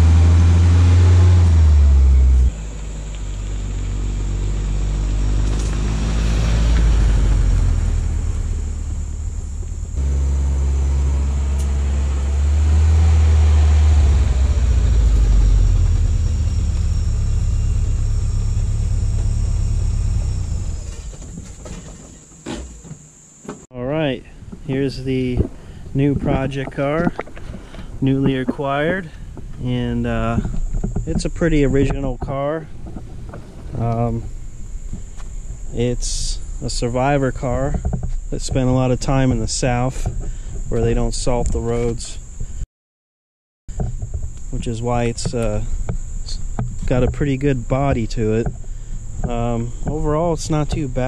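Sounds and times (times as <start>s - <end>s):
car engine revving: 0.0s - 21.8s.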